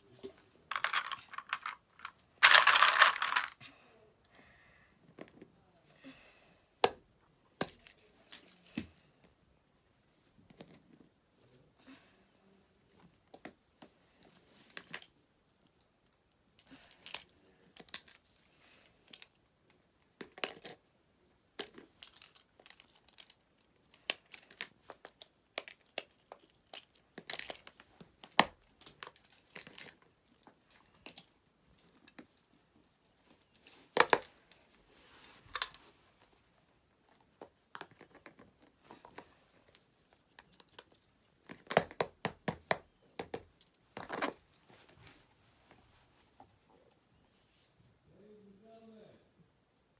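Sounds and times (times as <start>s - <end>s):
plastic fidget toys clicking: 0.7s - 3.5s.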